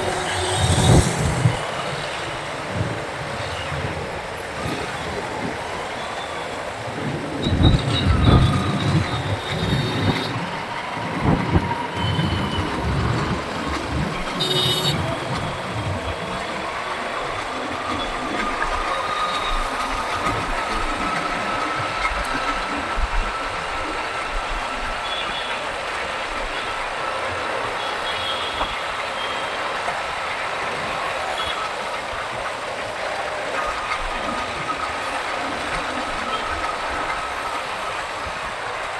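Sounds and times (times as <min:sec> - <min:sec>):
wind buffeting microphone: 0:00.0 - 0:27.8
road traffic noise: 0:00.0 - 0:38.9.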